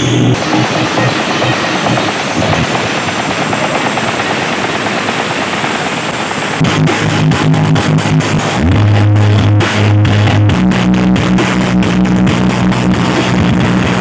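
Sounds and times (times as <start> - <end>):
loud music from sound system: 0.0 - 3.0, 6.6 - 14.0
heavy repeating bass notes: 0.0 - 4.6, 6.6 - 14.0.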